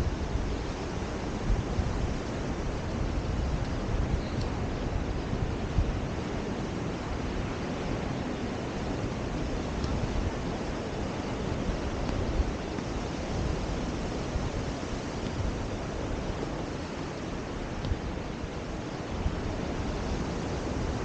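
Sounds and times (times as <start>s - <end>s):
ocean surf: 0.0s - 21.0s
wind buffeting microphone: 0.0s - 21.0s.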